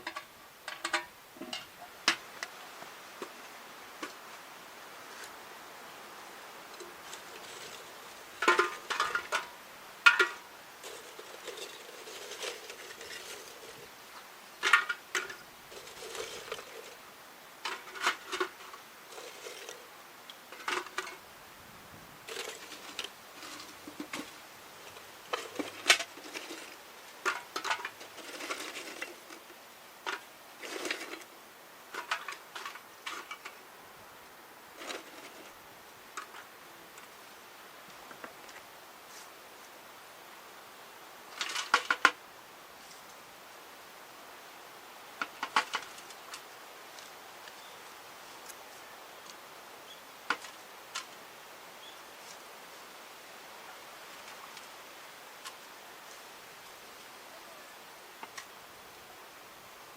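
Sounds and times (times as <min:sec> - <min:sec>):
soft rustling: 0:37.1 - 0:39.8.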